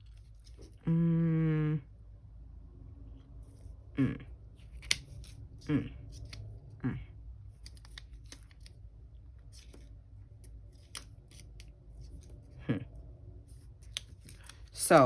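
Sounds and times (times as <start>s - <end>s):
stickers peeling and rustling: 4.5s - 6.6s, 7.4s - 12.6s, 13.4s - 15.0s.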